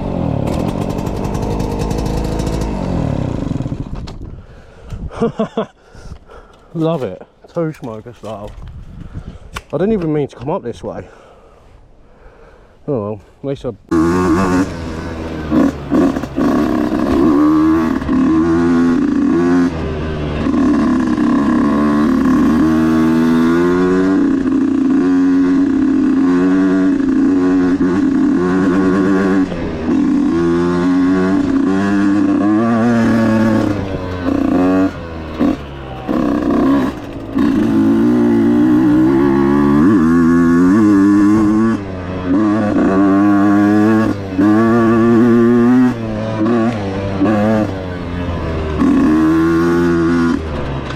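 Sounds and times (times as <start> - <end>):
dirt bike engine revving: 0.0 - 4.0, 13.9 - 50.9.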